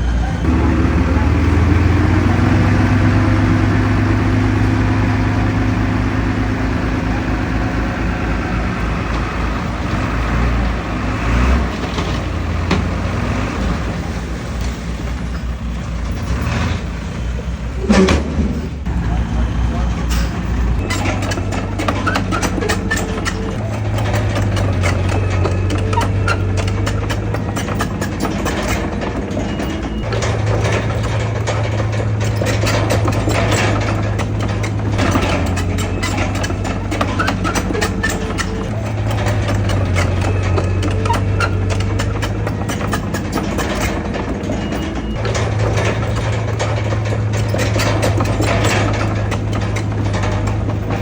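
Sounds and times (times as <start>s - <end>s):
heavy diesel engine running: 0.0s - 51.0s
metallic clanks and rattles: 0.0s - 51.0s.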